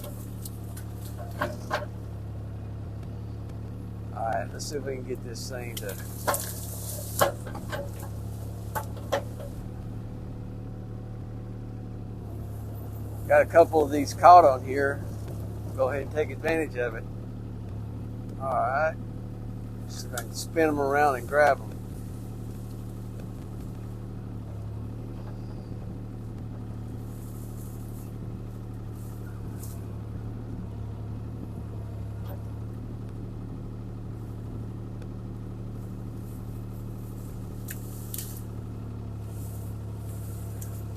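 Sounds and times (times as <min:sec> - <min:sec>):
sharp knocks and cracks: 0:00.0 - 0:02.0, 0:05.7 - 0:09.9
excavator diesel engine running: 0:00.0 - 0:40.9.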